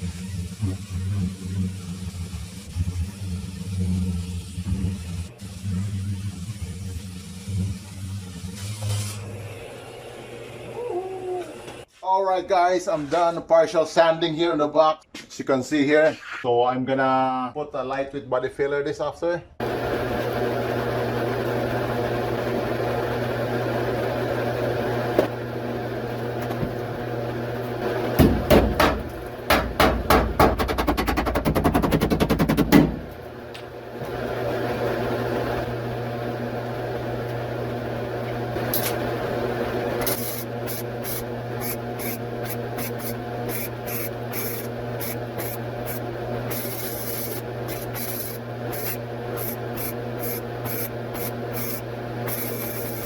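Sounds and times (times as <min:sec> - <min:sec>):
electrical hum: 0:19.6 - 0:53.0.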